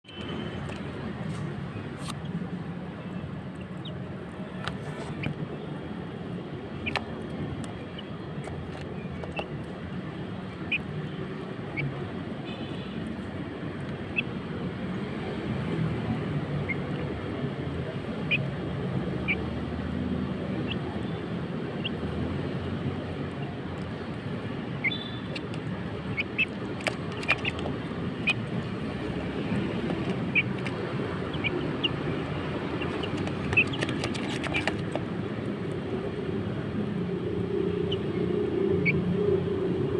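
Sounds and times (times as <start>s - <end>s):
chicks chirping and peeping: 6.8s - 7.0s, 10.5s - 10.9s, 24.7s - 28.5s, 29.6s - 35.1s.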